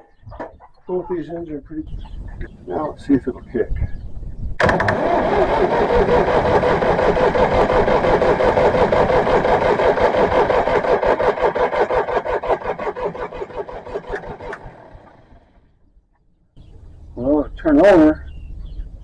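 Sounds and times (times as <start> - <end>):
starter motor cranking engine: 4.6 - 15.6.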